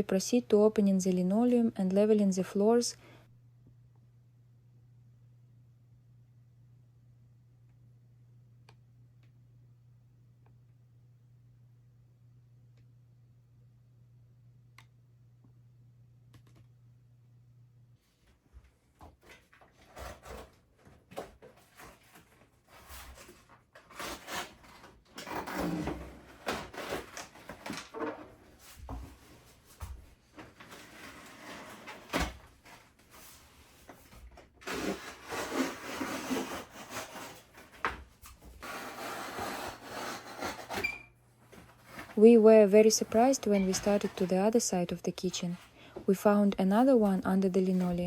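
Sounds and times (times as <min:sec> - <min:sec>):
linoleum scraping and dragging: 0:21.6 - 0:44.7.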